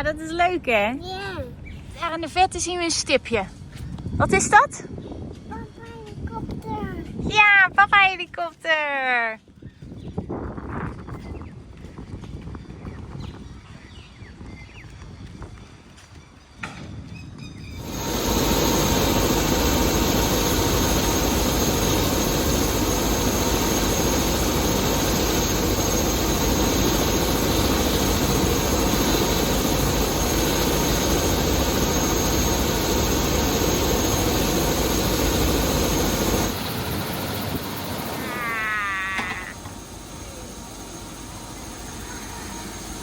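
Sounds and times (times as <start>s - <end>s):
high turbine whine: 17.6s - 43.0s
helicopter engine and rotor: 17.8s - 43.0s.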